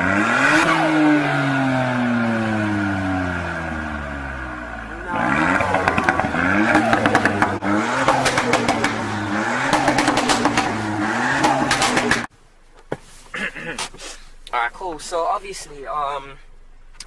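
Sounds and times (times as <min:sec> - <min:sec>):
car engine revving: 0:00.0 - 0:12.3
exhaust pops and bangs: 0:05.1 - 0:12.3.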